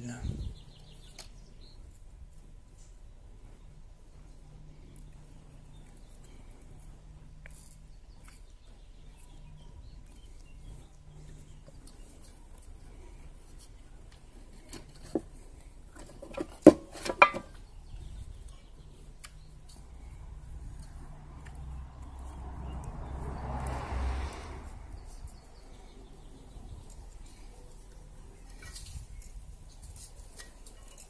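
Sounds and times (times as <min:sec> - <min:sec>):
handling of wires and hand tools: 0:11.6 - 0:17.6, 0:28.4 - 0:31.0.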